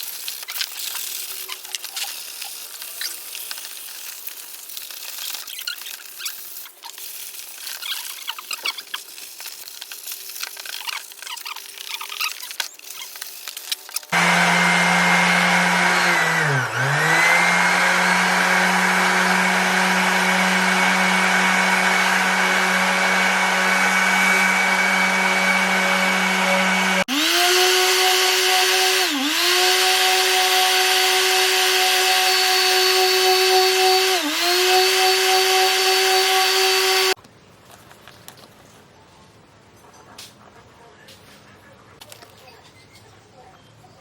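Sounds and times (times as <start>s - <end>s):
electric power tool running: 14.1s - 37.2s.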